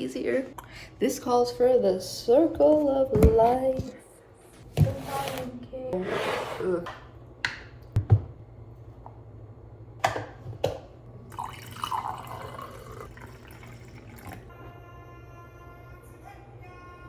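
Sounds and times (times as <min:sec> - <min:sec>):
water pouring into a cup: 0:11.2 - 0:14.5.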